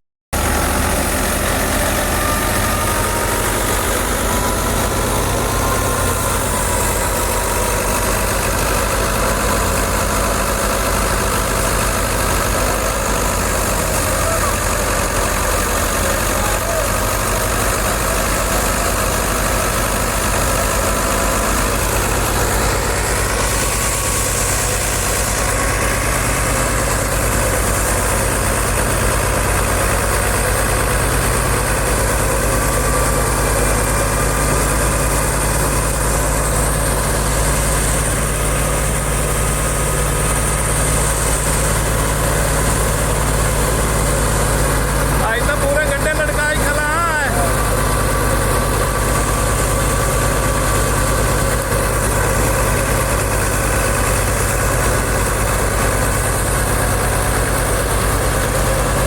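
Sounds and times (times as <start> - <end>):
tractor diesel engine running: 0.3 - 59.0.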